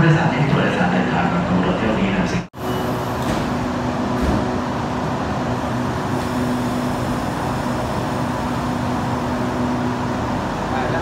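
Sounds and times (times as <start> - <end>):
train idling drone: 2.6 - 11.0.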